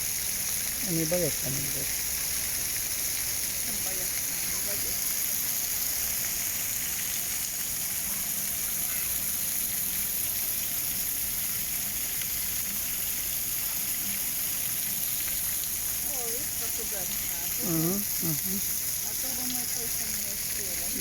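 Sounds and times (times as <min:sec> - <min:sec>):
heavy rain: 0:03.6 - 0:09.4, 0:14.8 - 0:21.0.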